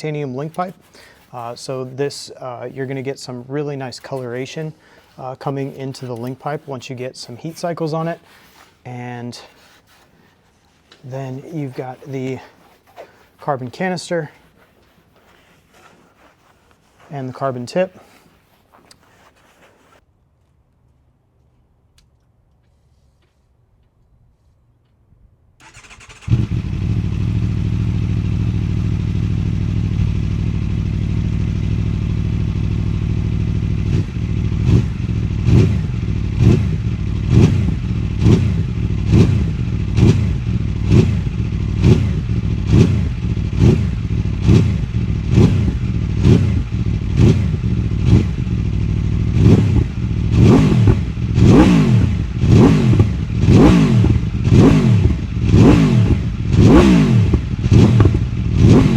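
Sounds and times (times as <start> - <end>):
motorcycle engine starting: 25.6 - 58.9
motorcycle engine idling: 25.7 - 58.9
throttle blips revving engine: 25.7 - 58.9.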